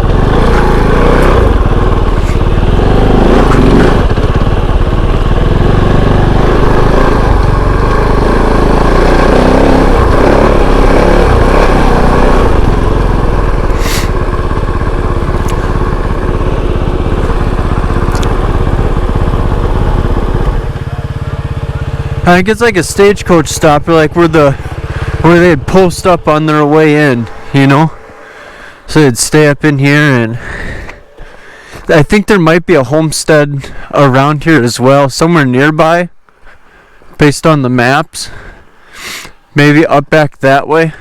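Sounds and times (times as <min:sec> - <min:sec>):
motorcycle engine revving: 0:00.0 - 0:32.2.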